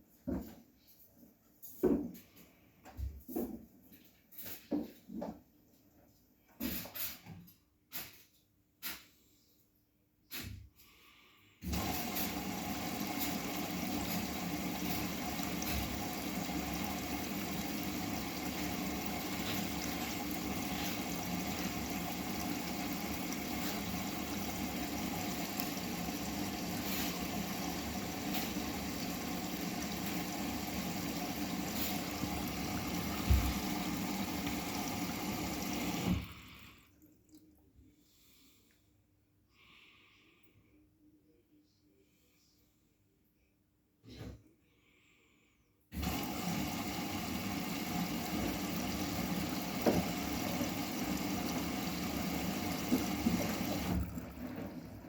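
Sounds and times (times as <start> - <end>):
washing machine water rushing: 11.6 - 37.4, 46.0 - 55.0.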